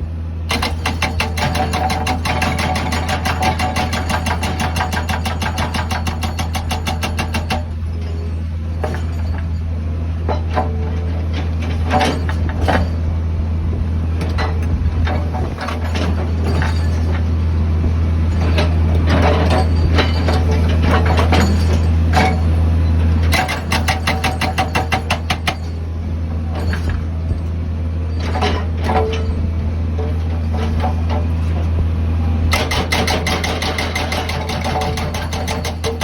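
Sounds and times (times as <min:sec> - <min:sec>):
diesel engine under load: 0:00.0 - 0:36.0
metallic clinks and clanks: 0:02.3 - 0:09.7, 0:15.6 - 0:17.3, 0:18.3 - 0:22.6.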